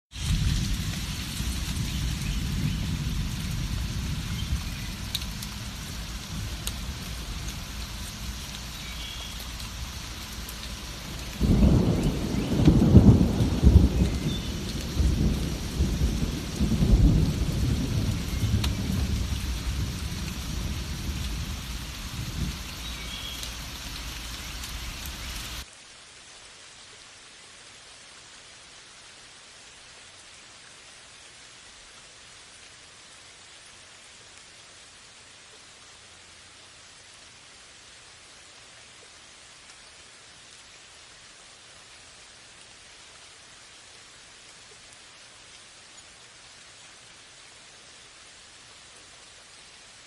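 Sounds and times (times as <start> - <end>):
heavy rain: 0.1 - 50.0
thunder rumbling: 0.2 - 8.7, 9.5 - 22.7.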